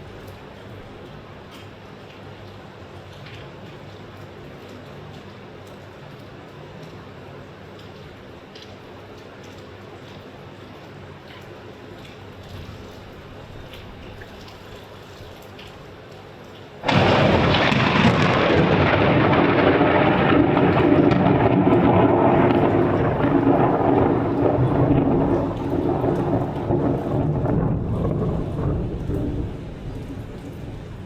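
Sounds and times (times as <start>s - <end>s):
rain falling: 0.0s - 31.0s
thunderclap rumbling: 16.8s - 31.0s.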